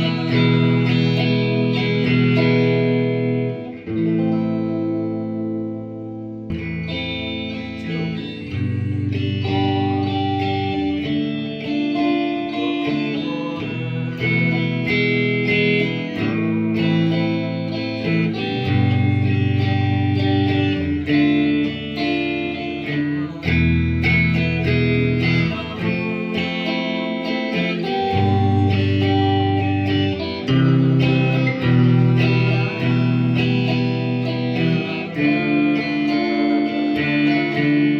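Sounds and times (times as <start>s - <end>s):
guitar background music with bass: 0.0s - 37.9s.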